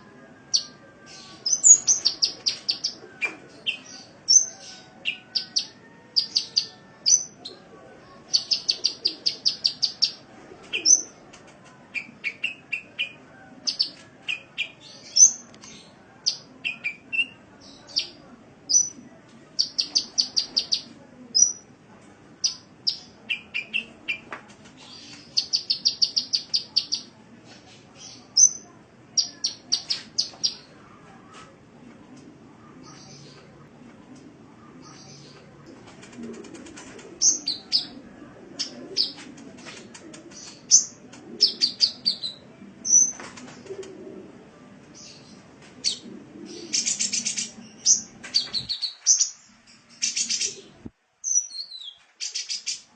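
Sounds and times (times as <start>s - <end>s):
sunbird singing: 0.5s - 3.0s, 8.3s - 11.1s.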